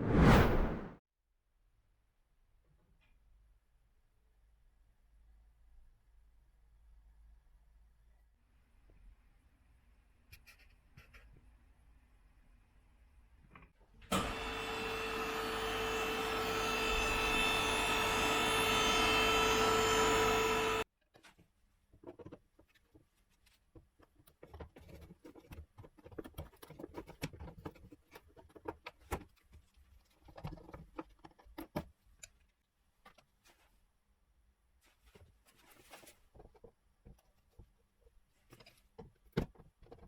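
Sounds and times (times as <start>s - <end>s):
machine hum with whine: 14.1s - 20.8s.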